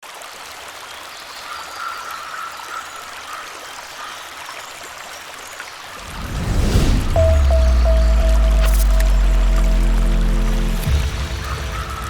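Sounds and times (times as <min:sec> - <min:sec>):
stream trickling: 0:00.0 - 0:06.2
low music: 0:06.1 - 0:12.0.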